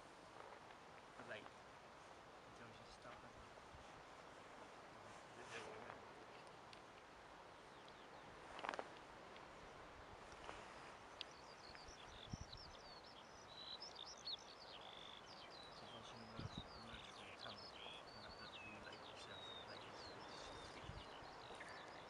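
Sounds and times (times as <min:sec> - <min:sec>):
small birds chirping and whistling: 0:10.9 - 0:22.0.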